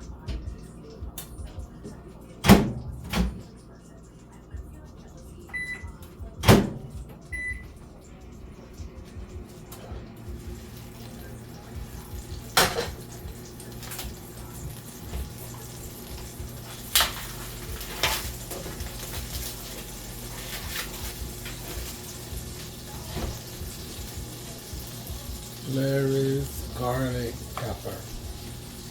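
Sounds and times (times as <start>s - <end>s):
steady low hum: 0.0s - 21.6s
dishes clanking: 12.4s - 13.3s.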